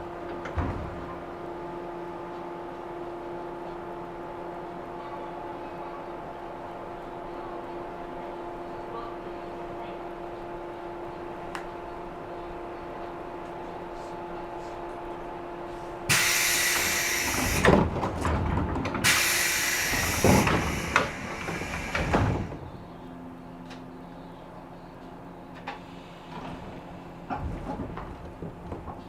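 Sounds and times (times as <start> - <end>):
train interior hum: 0.0 - 29.0
compressed air rush: 16.1 - 17.8, 19.0 - 22.5
sliding doors knocking: 16.1 - 22.6.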